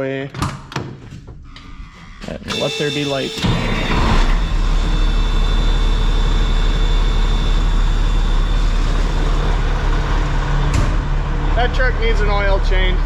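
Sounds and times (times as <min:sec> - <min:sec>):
truck engine running: 0:02.6 - 0:13.0.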